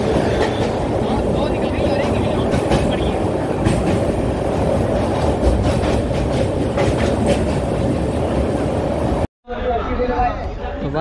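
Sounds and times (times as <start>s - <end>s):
rail joint clicks: 0.0s - 1.0s, 1.8s - 9.0s
train wheels rumbling on rails: 0.0s - 9.3s.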